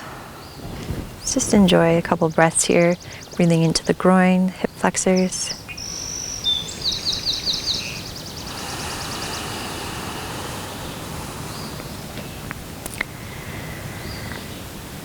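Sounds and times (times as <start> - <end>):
rushing hiss: 0.0 - 3.4, 5.8 - 14.4
low outdoor rumble: 0.0 - 14.4
songbird trilling: 0.4 - 12.6.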